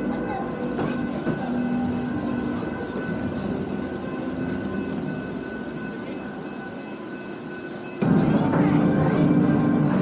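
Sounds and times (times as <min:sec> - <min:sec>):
wheel-on-rail running noise: 0:00.0 - 0:10.0.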